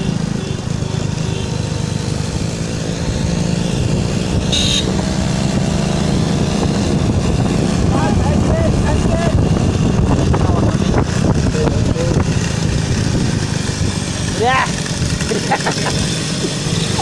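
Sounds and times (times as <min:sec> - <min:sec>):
motorcycle engine running: 0:00.0 - 0:17.0
wind and road rumble: 0:00.0 - 0:17.0.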